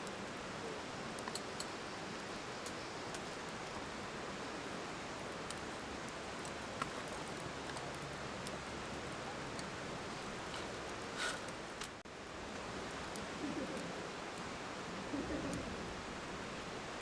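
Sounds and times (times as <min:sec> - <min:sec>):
campfire crackling and popping: 0:01.2 - 0:04.0, 0:05.0 - 0:12.0.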